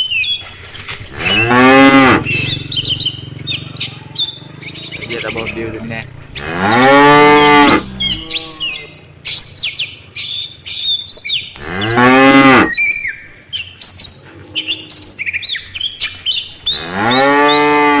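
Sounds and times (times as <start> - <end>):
birds chirping: 0.0 - 18.0
cattle mooing: 1.1 - 9.1, 11.6 - 12.8, 16.6 - 18.0.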